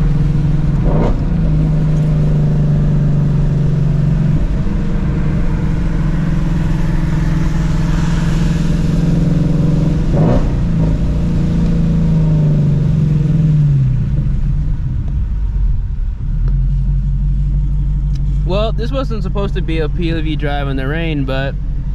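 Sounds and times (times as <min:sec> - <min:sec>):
tyres on wet road: 0:00.0 - 0:15.5
car engine running: 0:00.0 - 0:21.9.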